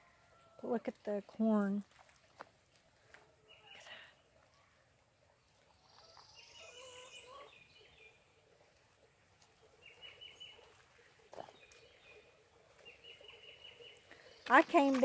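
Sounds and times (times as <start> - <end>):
distant bird calls: 3.3 - 15.0.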